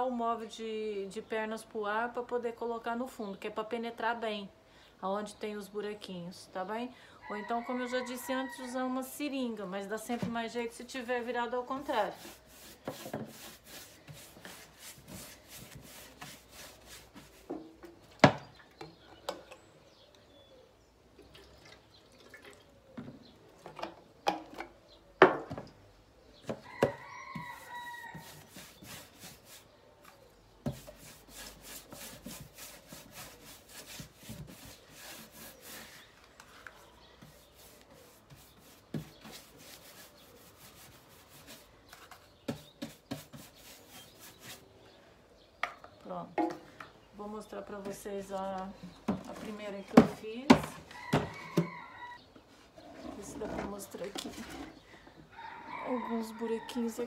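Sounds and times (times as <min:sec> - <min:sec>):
paintbrush scrubbing wood: 0:11.6 - 0:17.7, 0:27.3 - 0:29.7, 0:30.7 - 0:36.2, 0:37.2 - 0:41.7, 0:42.6 - 0:44.6
brush knocking wood and plastic tub: 0:11.8 - 0:18.6, 0:26.4 - 0:29.6, 0:30.6 - 0:36.0, 0:37.2 - 0:40.0, 0:40.7 - 0:44.3, 0:49.0 - 0:51.8.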